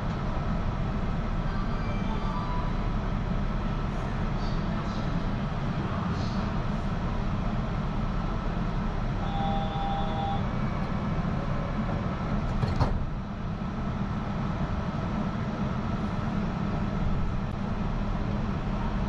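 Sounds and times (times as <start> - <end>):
train running low rumble: 0.0 - 19.0
brief steady tone: 1.6 - 2.9, 9.2 - 11.0.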